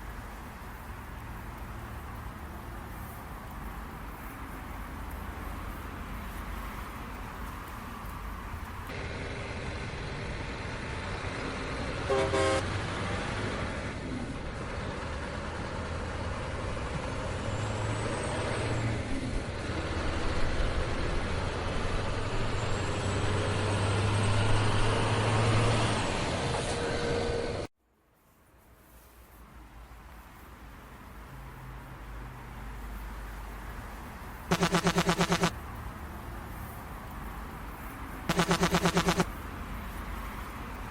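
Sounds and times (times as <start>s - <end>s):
truck engine and road noise: 0.0s - 40.9s
vehicle horn: 12.1s - 12.6s, 34.5s - 35.5s.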